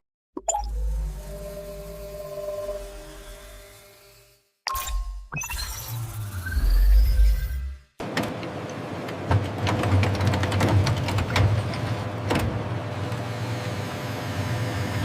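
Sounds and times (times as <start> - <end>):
industrial machinery hum: 8.0 - 15.0.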